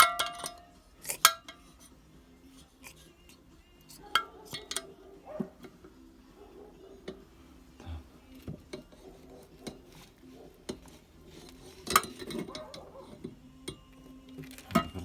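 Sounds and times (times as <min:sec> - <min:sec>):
metal clank: 0:00.0 - 0:01.7, 0:04.1 - 0:04.9, 0:11.6 - 0:13.3
metal tools clinking: 0:00.0 - 0:01.9, 0:02.6 - 0:05.8, 0:08.4 - 0:15.0
metal parts rattling: 0:09.6 - 0:13.3.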